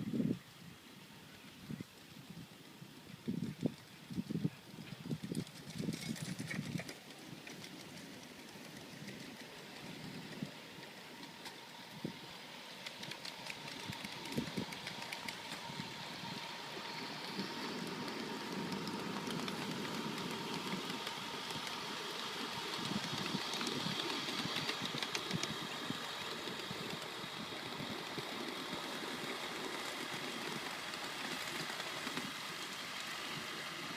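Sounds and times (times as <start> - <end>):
steam hiss: 9.6 - 33.9.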